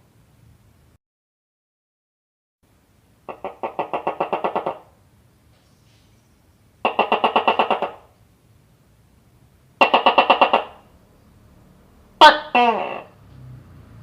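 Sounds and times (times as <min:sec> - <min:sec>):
gecko chirping: 0:03.3 - 0:04.9, 0:06.9 - 0:08.1.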